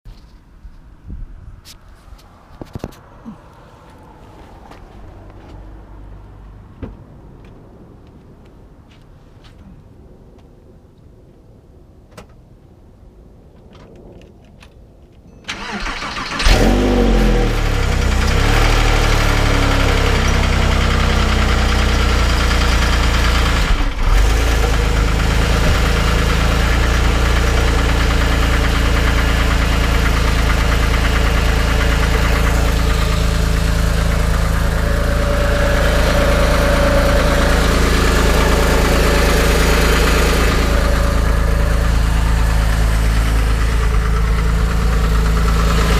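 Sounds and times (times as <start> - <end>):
car engine revving and idling: 15.6 - 45.9
engine knocking: 18.1 - 45.9.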